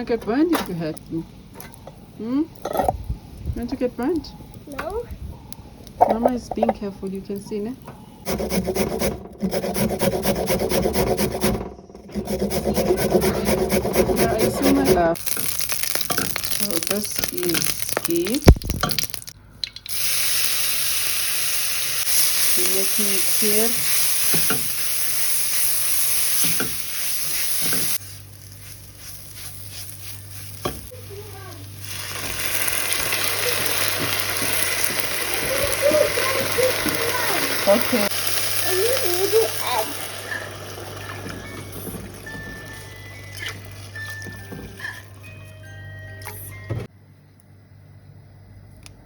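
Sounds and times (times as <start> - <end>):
rapid rasping and scraping: 8.2 - 15.2
stirring in a pan: 8.2 - 18.3, 22.0 - 45.3
food sizzling in hot oil: 12.3 - 45.2.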